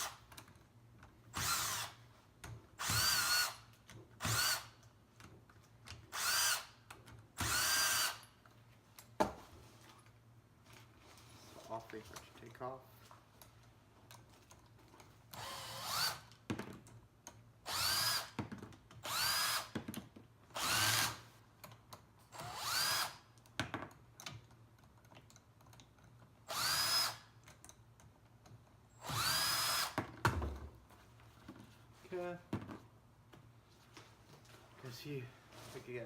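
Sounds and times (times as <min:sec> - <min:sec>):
power drill motor whirring: 0:01.3 - 0:02.0, 0:02.8 - 0:03.6, 0:04.2 - 0:04.8, 0:06.1 - 0:06.8, 0:07.4 - 0:08.2, 0:15.3 - 0:16.3, 0:17.7 - 0:18.4, 0:19.0 - 0:19.7, 0:20.6 - 0:21.2, 0:22.3 - 0:23.2, 0:26.5 - 0:27.3, 0:29.0 - 0:30.0.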